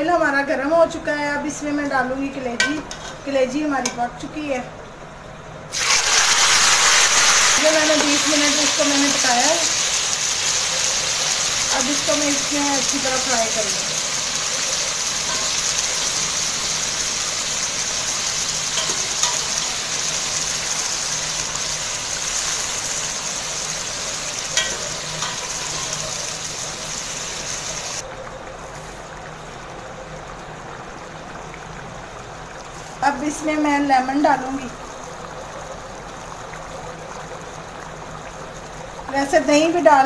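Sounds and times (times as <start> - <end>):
liver sizzling in hot oil: 5.7 - 28.0.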